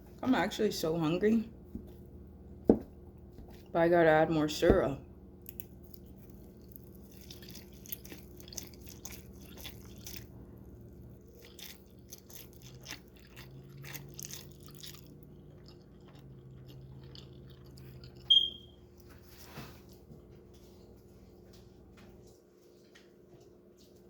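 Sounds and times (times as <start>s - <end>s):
faint steady hum: 0.0s - 24.0s
wet chewing crunches: 5.4s - 19.1s
high-pitched squeak: 18.3s - 18.7s.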